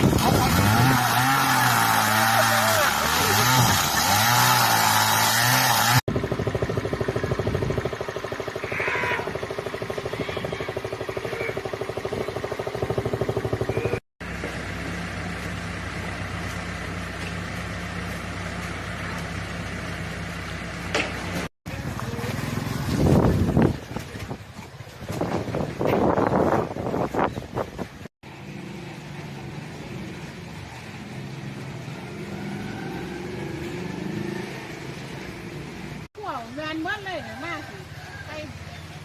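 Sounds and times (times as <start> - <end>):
vehicle engines running: 5.4 - 39.0.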